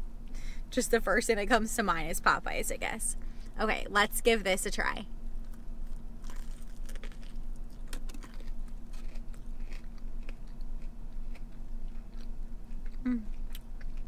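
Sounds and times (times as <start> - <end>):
person chewing crunchy food: 5.4 - 14.0.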